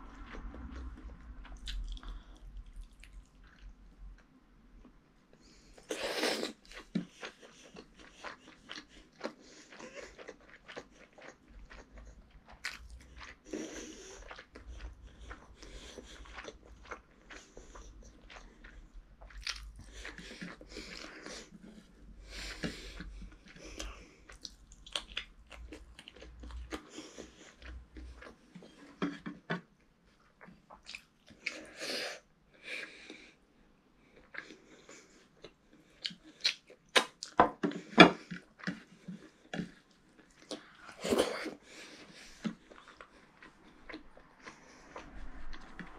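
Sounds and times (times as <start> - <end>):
child chewing food: 0.0 - 45.9
lip smacks: 36.0 - 37.4.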